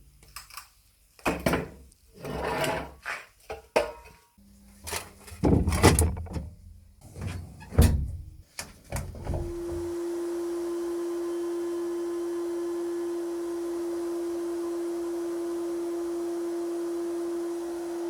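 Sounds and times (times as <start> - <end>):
hard parts knocking and scraping: 4.9 - 8.2.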